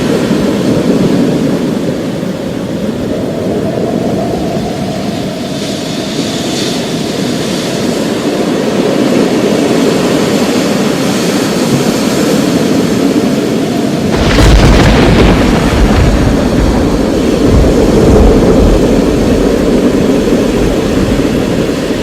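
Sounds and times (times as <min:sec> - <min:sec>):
thunder rumbling: 0:00.0 - 0:22.0
thunderclap: 0:11.5 - 0:22.0.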